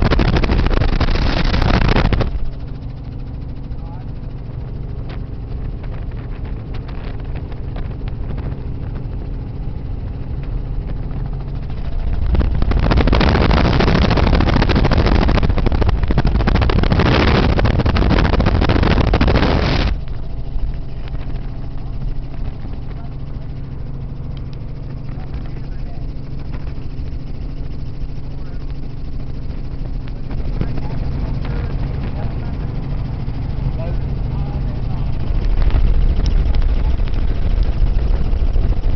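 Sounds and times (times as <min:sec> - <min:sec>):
helicopter engine and rotor drone: 0:00.0 - 0:38.9.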